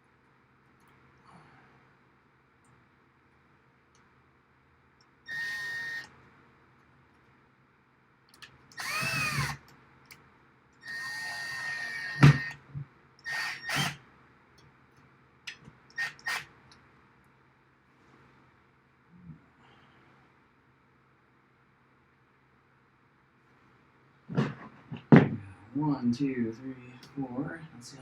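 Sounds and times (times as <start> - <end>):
power drill whining: 5.3 - 6.1, 8.8 - 9.6, 10.8 - 12.6, 13.2 - 14.0, 16.0 - 16.5.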